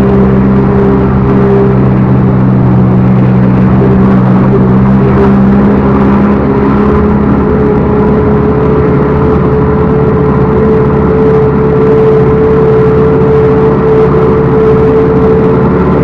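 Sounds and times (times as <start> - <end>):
diesel engine running loudly: 0.0 - 16.0
steady whine: 0.0 - 16.0.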